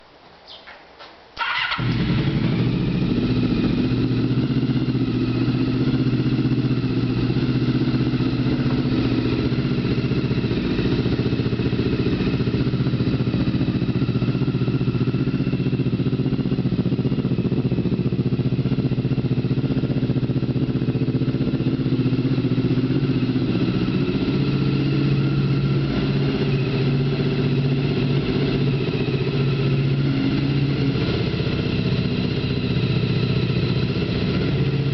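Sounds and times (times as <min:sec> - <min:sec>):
motorcycle engine idling: 0:01.4 - 0:34.9.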